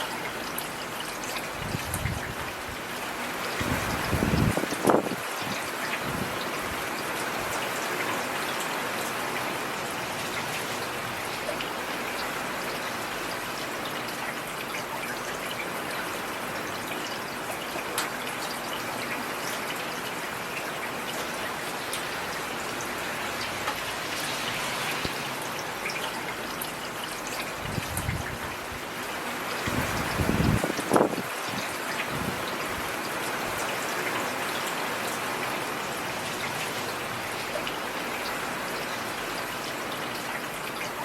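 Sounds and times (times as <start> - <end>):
heavy rain hissing: 22.1 - 25.8.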